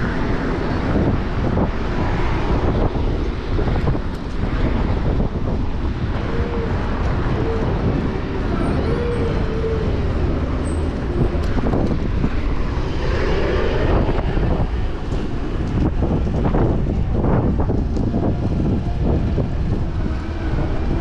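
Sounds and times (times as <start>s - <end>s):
city street traffic: 0.0s - 21.0s
wind noise on microphone: 0.0s - 21.0s.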